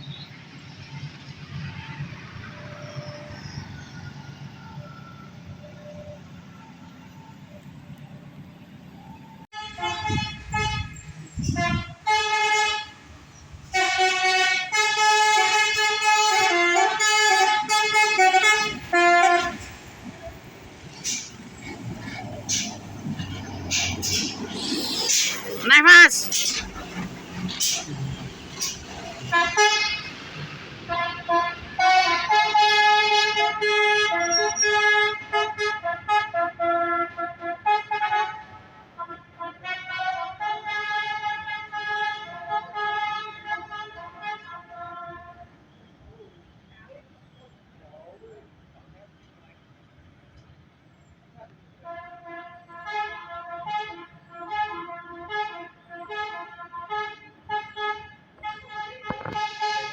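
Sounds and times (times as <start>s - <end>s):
musical air horn: 9.5s - 19.7s, 22.5s - 30.1s, 30.9s - 45.4s, 51.8s - 59.9s.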